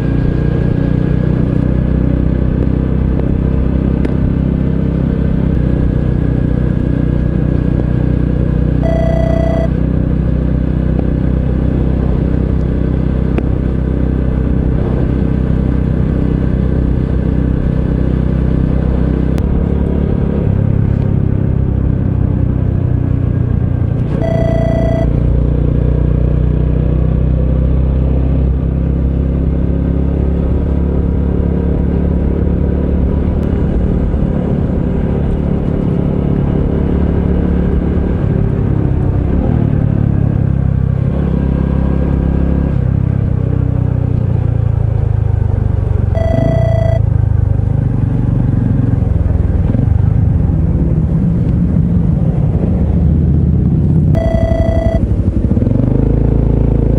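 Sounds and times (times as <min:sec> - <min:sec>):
brief high tones: 0:08.8 - 0:09.7, 0:24.2 - 0:25.2, 0:46.2 - 0:47.0, 0:54.2 - 0:55.0
motorcycle engine running: 0:46.2 - 0:47.5, 0:54.2 - 0:56.9.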